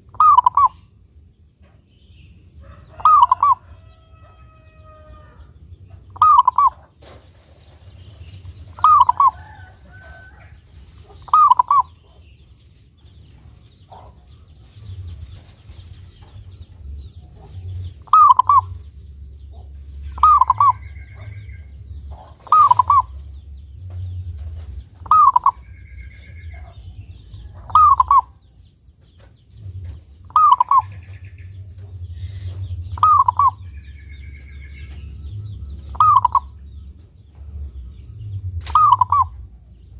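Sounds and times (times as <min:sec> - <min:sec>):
dove cooing: 0:00.0 - 0:00.8, 0:02.9 - 0:03.7, 0:06.0 - 0:06.8, 0:08.7 - 0:12.2, 0:17.3 - 0:18.9, 0:19.5 - 0:23.3, 0:24.4 - 0:28.4, 0:30.3 - 0:31.4, 0:32.2 - 0:34.3, 0:35.8 - 0:36.6, 0:38.6 - 0:39.5
low steady hum: 0:00.0 - 0:39.9.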